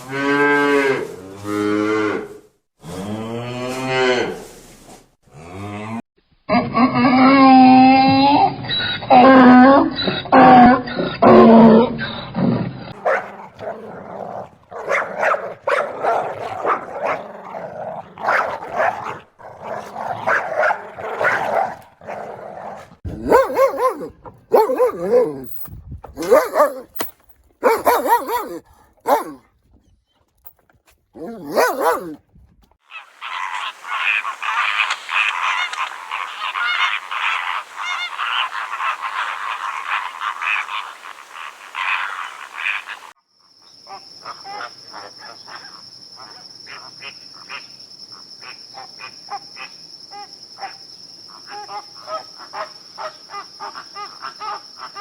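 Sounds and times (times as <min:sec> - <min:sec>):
frogs croaking: 0:12.9 - 0:25.3, 0:32.8 - 0:55.0
dog barking and whimpering: 0:13.0 - 0:25.6, 0:26.2 - 0:29.5, 0:31.2 - 0:32.2.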